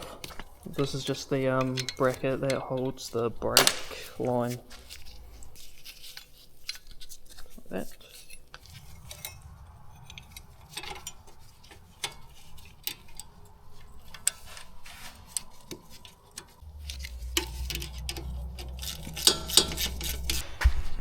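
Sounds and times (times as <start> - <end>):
low hum: 4.5 - 6.2, 8.2 - 21.0
metallic clicks of hand tools: 15.3 - 20.4.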